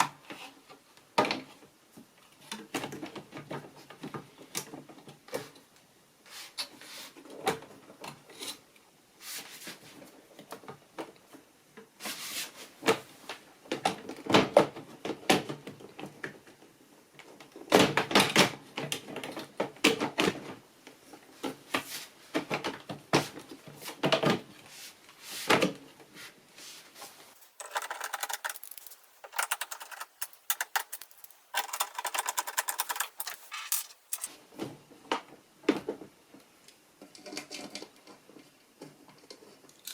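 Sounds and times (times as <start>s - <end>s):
panels clicking and clattering: 27.4s - 34.3s
rapid even clicking: 27.4s - 34.3s.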